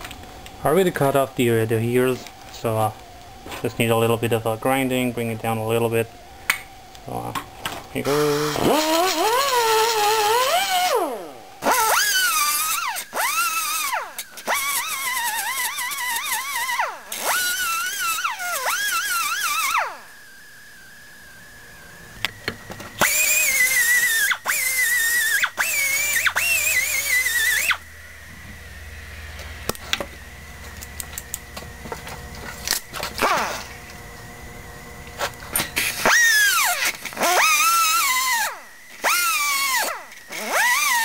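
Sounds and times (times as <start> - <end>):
angle grinder grinding steel: 8.0 - 20.0, 23.0 - 34.0, 35.1 - 41.0
clicks and handling noise: 29.3 - 34.3.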